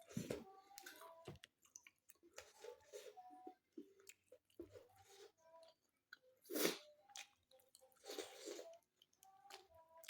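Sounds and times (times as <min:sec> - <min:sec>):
wet chewing: 0:00.7 - 0:03.1.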